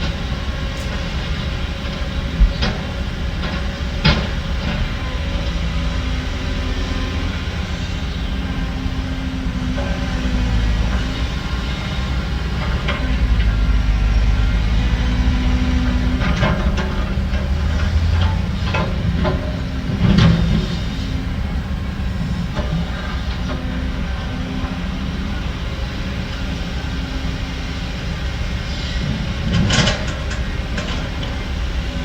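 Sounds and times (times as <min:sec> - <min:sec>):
construction machinery engine drone: 0:00.0 - 0:32.0
metal clanks and knocks: 0:15.6 - 0:23.6.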